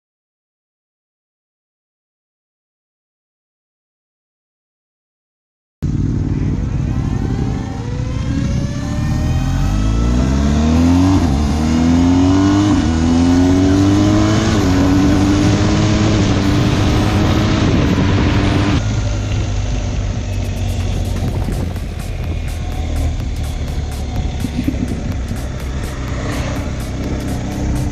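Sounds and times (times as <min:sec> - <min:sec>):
motorcycle accelerating hard: 0:05.8 - 0:27.9.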